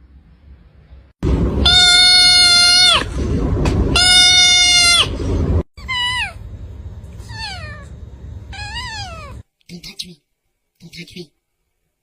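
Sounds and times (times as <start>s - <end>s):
loud animal cries: 1.6s - 3.2s, 3.9s - 6.4s, 7.2s - 7.9s, 8.5s - 9.4s.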